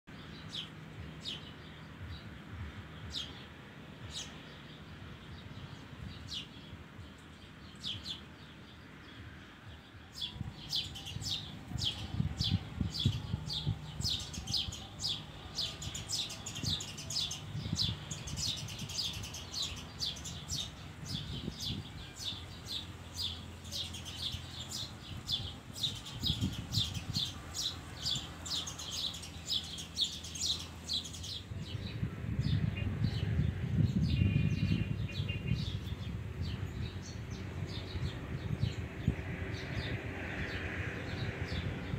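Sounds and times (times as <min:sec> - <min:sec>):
steady low background noise: 0:00.1 - 0:32.8
bird chirping: 0:00.1 - 0:39.8.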